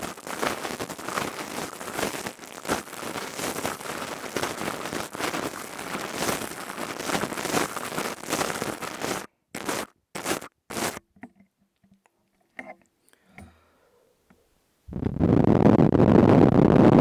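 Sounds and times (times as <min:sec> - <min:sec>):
crystal tube crackling clicks: 0:00.0 - 0:13.5.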